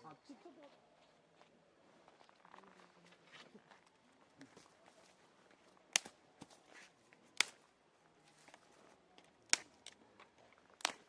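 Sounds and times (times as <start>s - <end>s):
wood fire popping: 5.9s - 6.2s, 9.2s - 11.0s.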